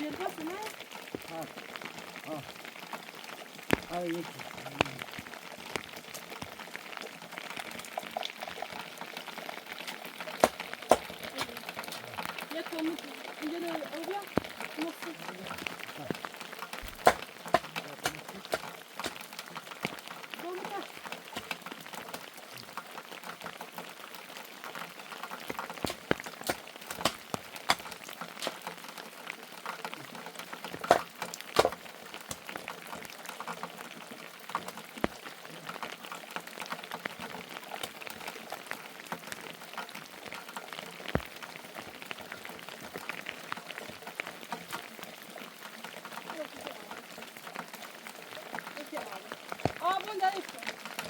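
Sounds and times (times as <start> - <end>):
rain falling: 0.0 - 51.0
drops tapping a surface: 3.7 - 4.0, 9.9 - 12.4, 15.2 - 20.0, 25.3 - 28.7.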